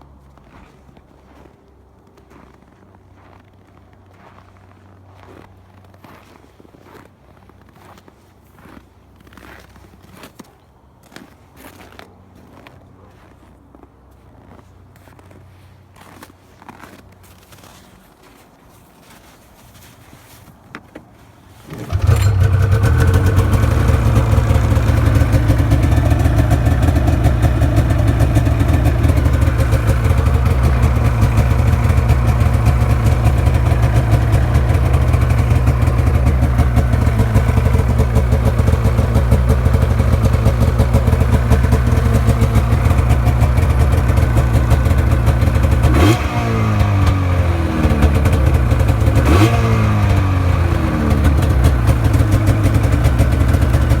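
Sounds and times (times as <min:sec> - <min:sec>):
snowmobile engine revving: 0:21.7 - 0:54.0.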